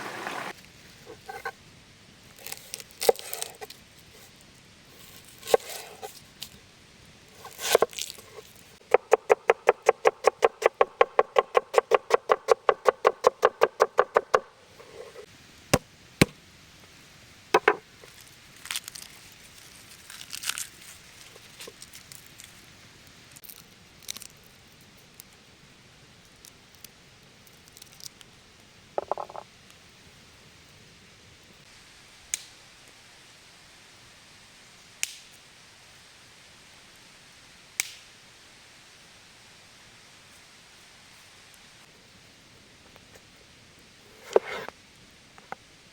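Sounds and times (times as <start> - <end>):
single knocks and clicks: 17.6 - 17.8.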